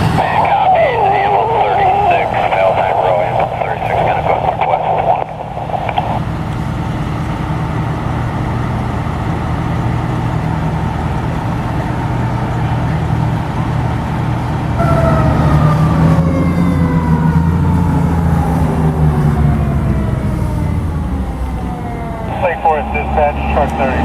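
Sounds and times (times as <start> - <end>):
fire truck engine droning: 0.0 - 24.0
siren falling in pitch: 14.8 - 24.0.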